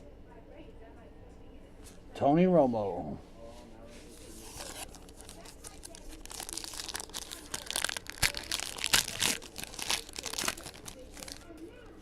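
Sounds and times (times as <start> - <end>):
foil wrapper crinkling: 4.3 - 11.6.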